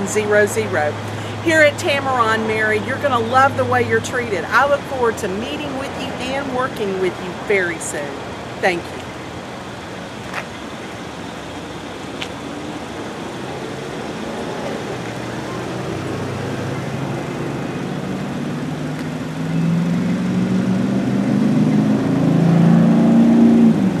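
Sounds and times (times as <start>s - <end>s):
car engine accelerating: 12.1s - 24.0s.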